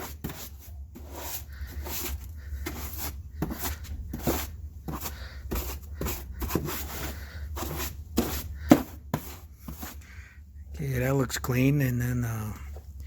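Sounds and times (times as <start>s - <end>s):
brush scrubbing plastic panel: 0.0s - 10.0s.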